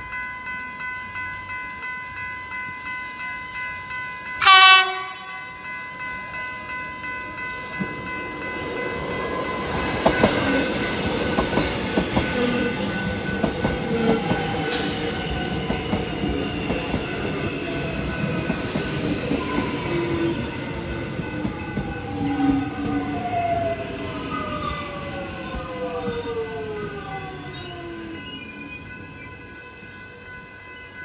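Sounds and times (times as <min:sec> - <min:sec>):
wheel and rail noise: 0:05.3 - 0:31.0.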